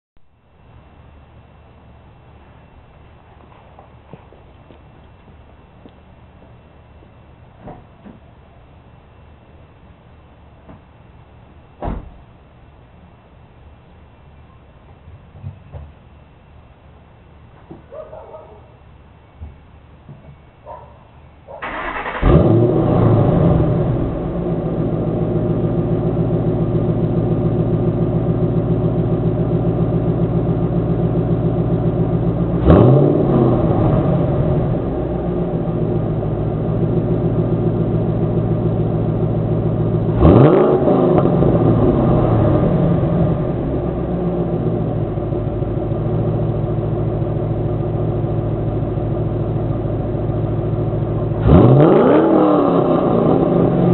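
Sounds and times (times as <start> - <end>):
car engine idling: 21.4 - 53.9
engine throttle blips: 21.6 - 53.9.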